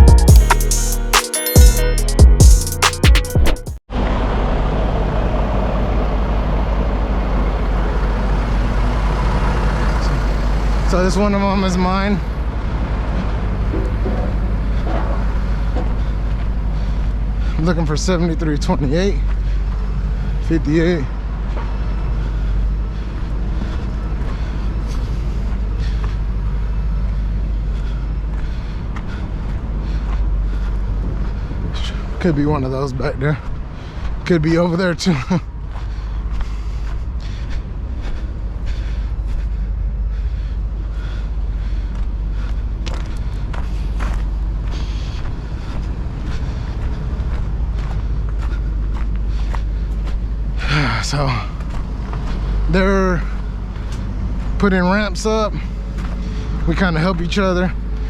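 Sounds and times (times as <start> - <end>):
intro music: 0.0 - 3.8
truck diesel engine idling: 4.0 - 32.8, 35.5 - 58.0.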